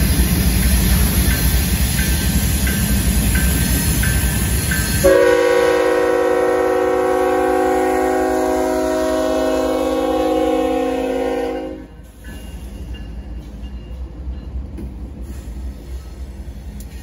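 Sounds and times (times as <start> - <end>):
passing locomotives rumbling: 0.0 - 17.0
train horn chord: 5.0 - 12.0.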